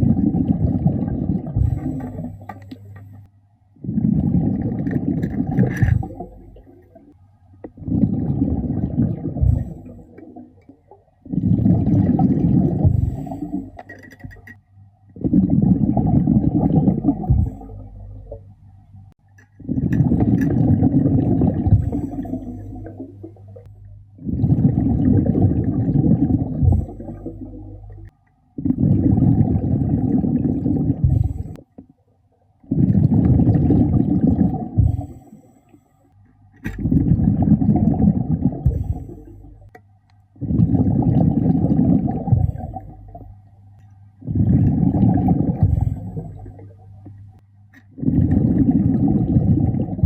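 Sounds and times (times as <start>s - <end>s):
underwater bubbles gurgling: 0.0s - 32.0s, 32.6s - 35.8s, 36.4s - 50.0s
quiet inhalations: 1.4s - 5.0s, 7.8s - 10.4s, 11.2s - 13.9s, 21.6s - 23.0s, 30.6s - 31.7s, 34.6s - 36.3s, 38.6s - 39.7s, 44.2s - 46.8s.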